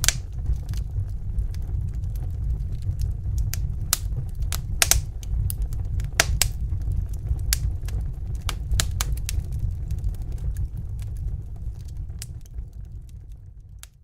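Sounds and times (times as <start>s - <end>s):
low rumble of flames: 0.0s - 14.0s
wood fire crackling: 0.0s - 14.0s.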